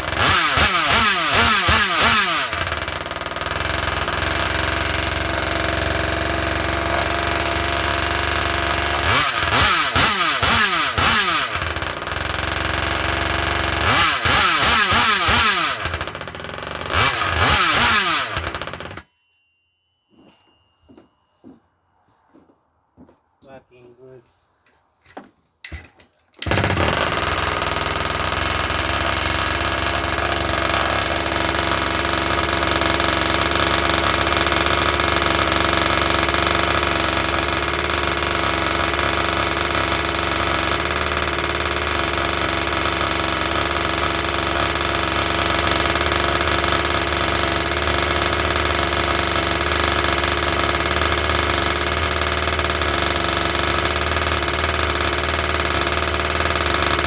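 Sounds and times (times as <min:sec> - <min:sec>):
small two-stroke engine running: 0:00.0 - 0:19.1, 0:26.4 - 0:57.0.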